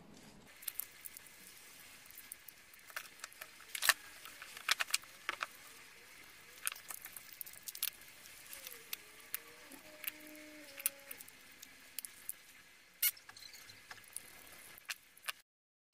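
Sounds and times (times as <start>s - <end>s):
plastic parts clicking and tapping: 2.8s - 5.6s.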